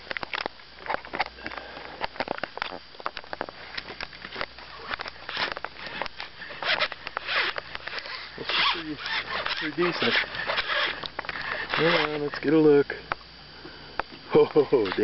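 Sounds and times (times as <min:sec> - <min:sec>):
fishing reel buzzing: 0:04.6 - 0:12.7
fishing reel drag clicking: 0:05.3 - 0:12.4.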